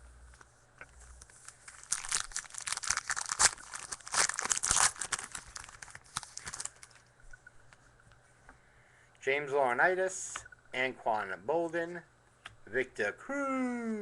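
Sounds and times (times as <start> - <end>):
wrapper tearing and crinkling: 1.2 - 7.0.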